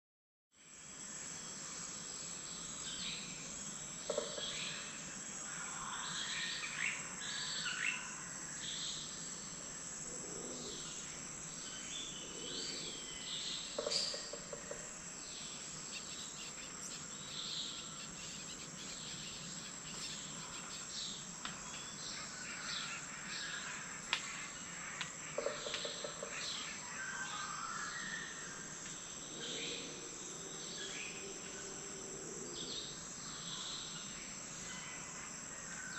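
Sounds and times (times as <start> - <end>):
high-pitched insect drone: 10.3 - 25.6
birds chirping: 15.3 - 23.8.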